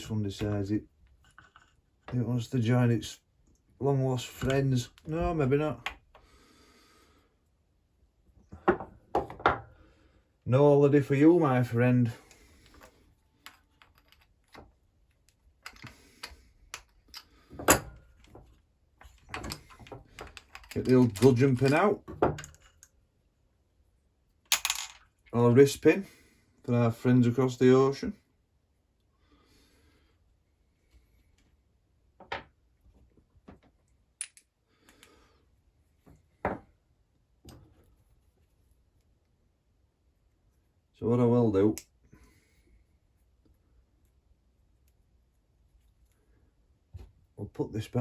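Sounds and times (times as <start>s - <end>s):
metal parts clicking on workbench: 19.0s - 22.9s.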